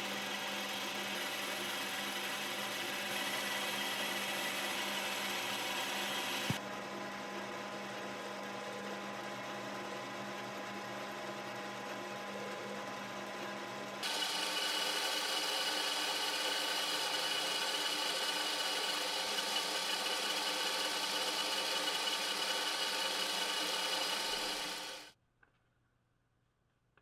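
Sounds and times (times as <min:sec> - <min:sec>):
small electric motor running: 0:00.0 - 0:07.0, 0:12.3 - 0:25.1.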